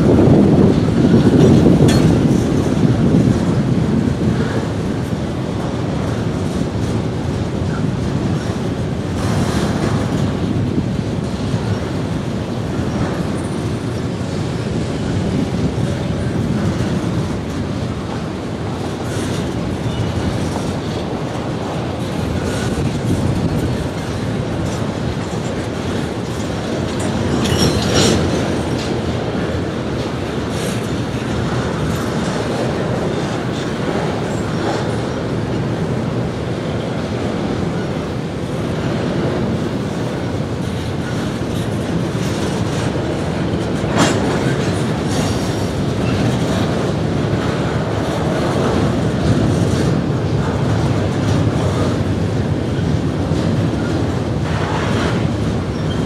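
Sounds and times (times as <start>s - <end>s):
train wheels clicking over rail joints: 0.0s - 56.0s
sharp metallic clanks: 27.2s - 28.9s.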